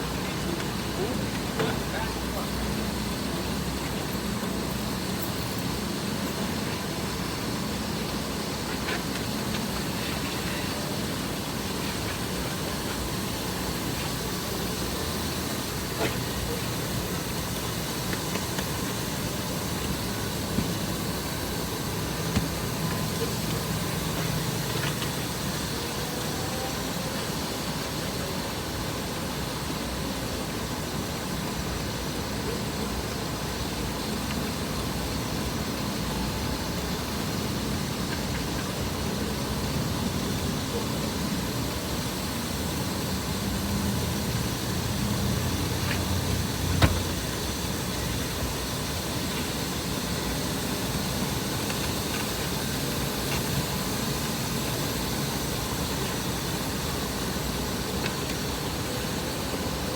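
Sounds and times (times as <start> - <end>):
air noise: 0.0 - 59.9
car engine idling: 42.4 - 54.6.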